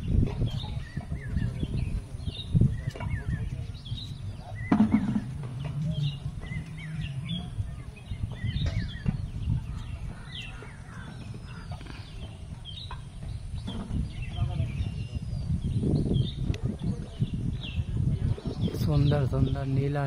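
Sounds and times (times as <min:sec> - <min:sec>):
steady low rumble: 0:00.0 - 0:19.4
birds chirping: 0:00.0 - 0:20.0.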